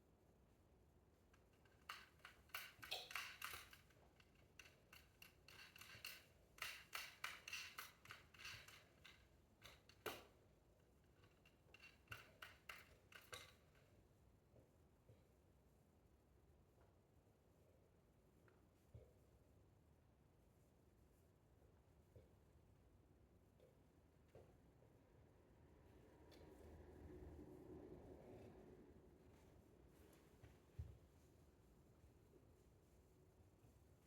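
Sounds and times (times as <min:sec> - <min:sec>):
faint quick clicking and rattling: 0:01.6 - 0:10.2.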